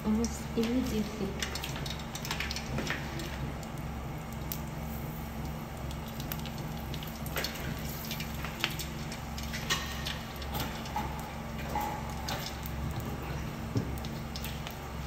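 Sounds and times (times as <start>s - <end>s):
prawn crackers sizzling in oil: 0.0s - 15.0s
steady low hum: 0.0s - 15.0s.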